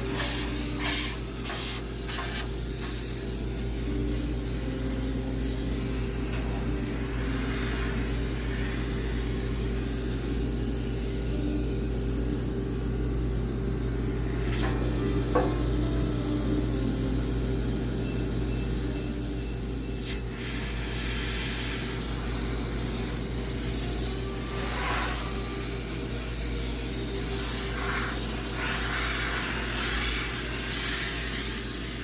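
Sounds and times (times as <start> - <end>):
steam cleaner hissing: 0.0 - 3.8, 5.7 - 10.0, 20.2 - 32.0.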